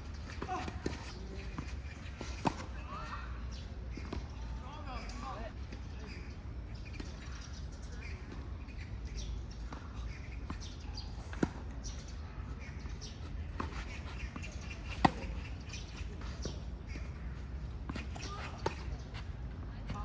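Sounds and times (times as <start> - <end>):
tennis ball bouncing: 13.5 - 15.8.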